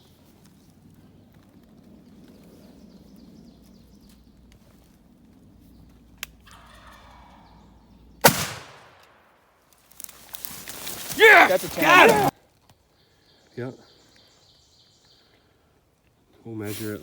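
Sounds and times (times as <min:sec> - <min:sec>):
shotgun blast: 0:08.2 - 0:09.2.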